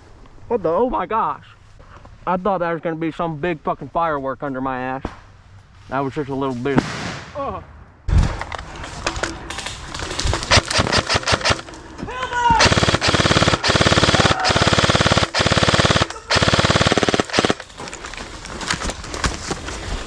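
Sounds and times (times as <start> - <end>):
airsoft guns firing: 10.1 - 11.8, 12.6 - 18.0.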